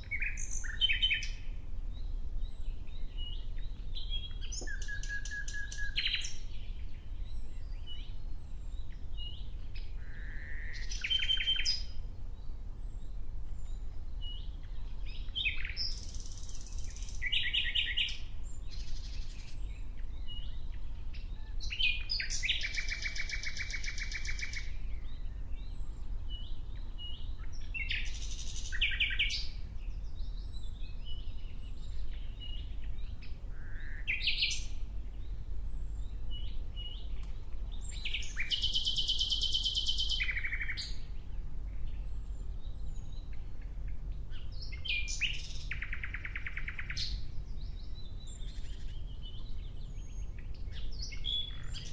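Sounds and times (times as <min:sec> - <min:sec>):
nightingale singing: 0:00.0 - 0:51.9
low steady rumble: 0:24.6 - 0:38.4, 0:40.2 - 0:46.0, 0:47.1 - 0:51.9.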